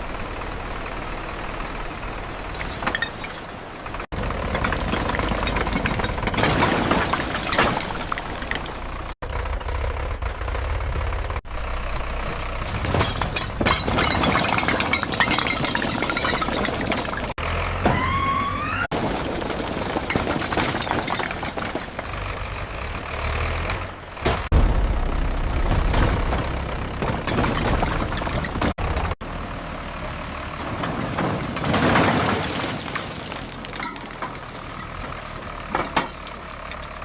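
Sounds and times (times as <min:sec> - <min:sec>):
tractor engines running: 0:00.0 - 0:37.0.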